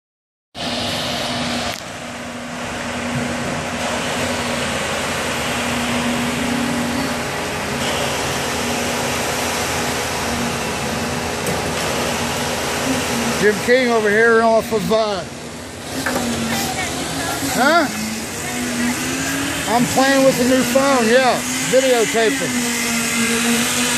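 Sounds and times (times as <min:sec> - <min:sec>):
engine running: 0:00.6 - 0:23.9.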